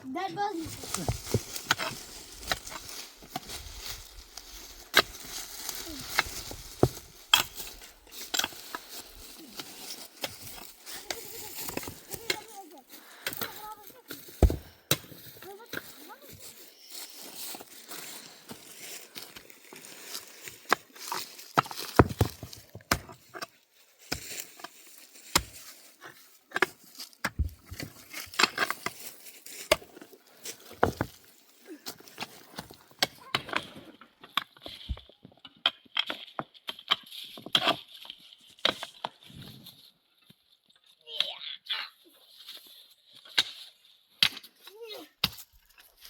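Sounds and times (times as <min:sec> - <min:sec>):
scraping and handling noise: 0:00.4 - 0:40.6
knocks and chopping strikes: 0:14.3 - 0:15.3.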